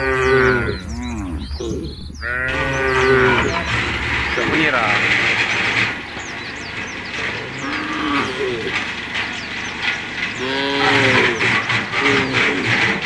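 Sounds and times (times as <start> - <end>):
cattle mooing: 0.0 - 5.8.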